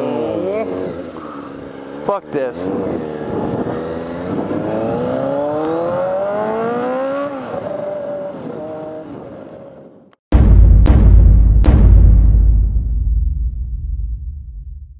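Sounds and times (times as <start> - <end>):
motorcycle engine accelerating: 0.0 - 9.1.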